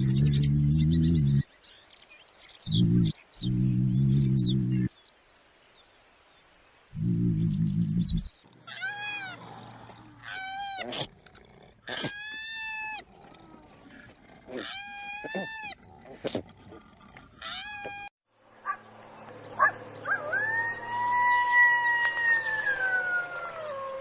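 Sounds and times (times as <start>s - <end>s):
long animal call: 2.7s - 4.9s, 7.0s - 18.1s
animal crying out: 8.6s - 16.4s, 17.4s - 18.1s.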